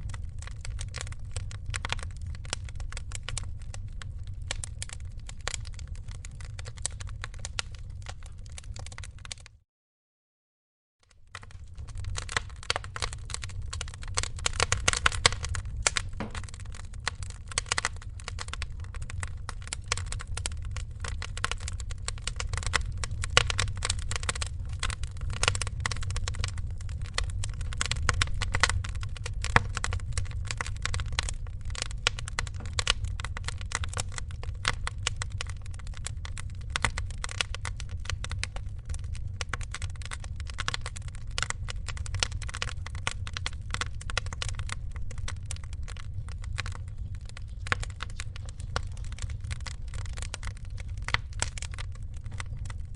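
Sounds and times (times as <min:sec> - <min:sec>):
wood fire crackling: 0:00.0 - 0:09.5, 0:11.1 - 0:52.9
low rumble of flame: 0:00.0 - 0:09.6, 0:11.1 - 0:52.9.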